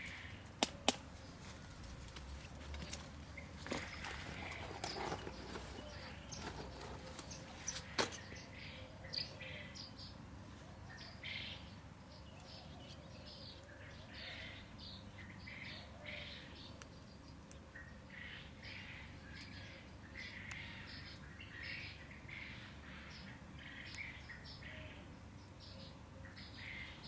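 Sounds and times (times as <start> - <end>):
small birds chirping: 0.0 - 27.0
rustling: 1.0 - 8.3.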